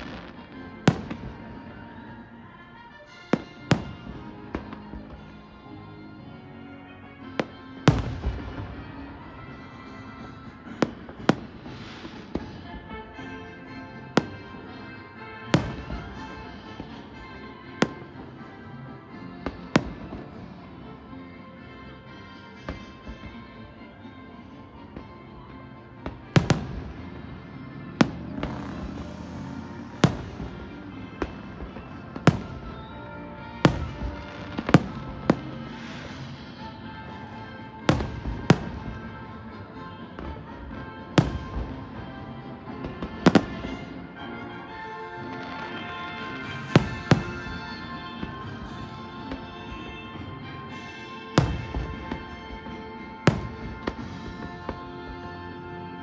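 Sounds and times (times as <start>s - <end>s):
fireworks bangs: 0.0s - 2.0s, 3.3s - 5.4s, 14.0s - 20.5s, 26.0s - 39.6s, 40.2s - 44.3s, 45.3s - 50.0s, 50.7s - 55.9s
music: 0.0s - 56.0s
fireworks crackling hiss: 10.7s - 13.3s, 28.1s - 39.3s.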